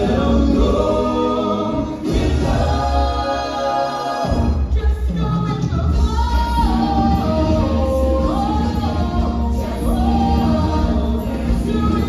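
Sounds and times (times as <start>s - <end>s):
choir backing: 0.0s - 12.0s
voices singing: 0.0s - 12.0s
steady bass: 5.9s - 12.0s.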